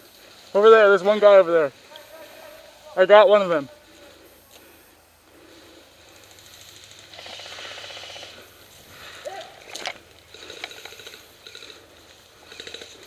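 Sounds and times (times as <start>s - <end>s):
airsoft guns firing bursts: 6.5s - 8.5s, 10.3s - 13.0s.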